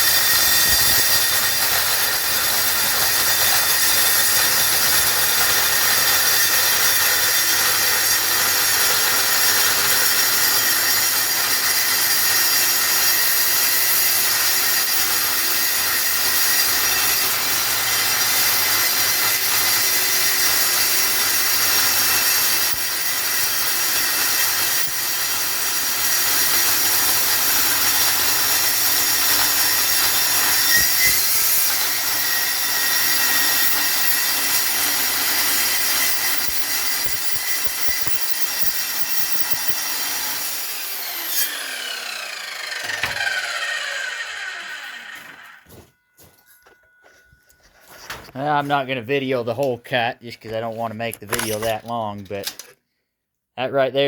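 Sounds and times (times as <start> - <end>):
circular saw cutting steel: 0.0 - 45.8.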